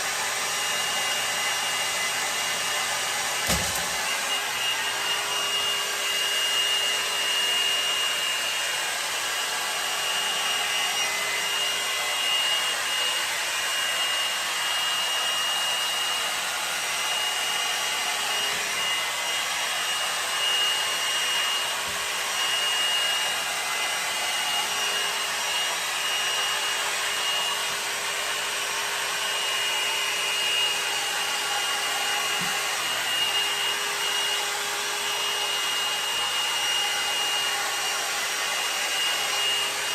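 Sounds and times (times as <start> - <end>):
hair dryer brush running: 0.0 - 39.9.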